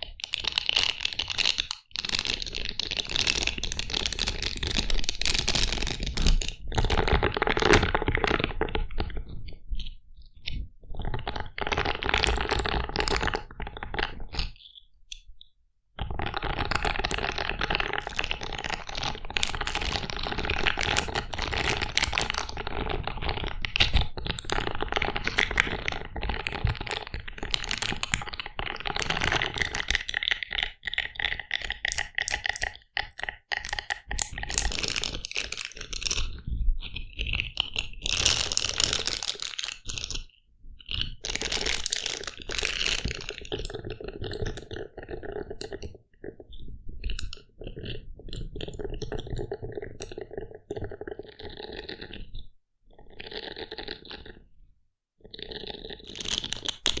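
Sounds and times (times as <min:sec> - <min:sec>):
crackling handling sounds: 0:19.4 - 0:22.8, 0:23.7 - 0:30.3.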